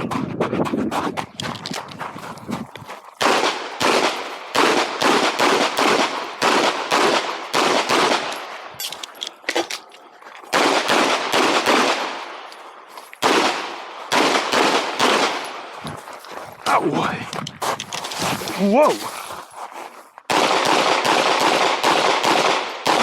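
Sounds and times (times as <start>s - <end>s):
rapid pistol fire: 3.2s - 8.3s, 10.5s - 12.3s, 13.2s - 15.6s, 20.3s - 23.0s.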